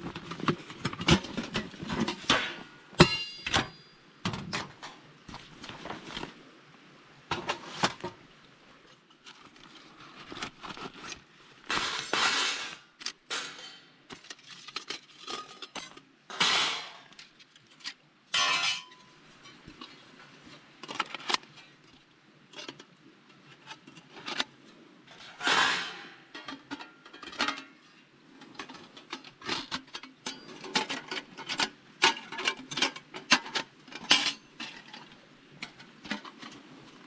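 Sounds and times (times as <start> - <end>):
camping gear clinking: 0.0 - 6.4, 9.2 - 21.8.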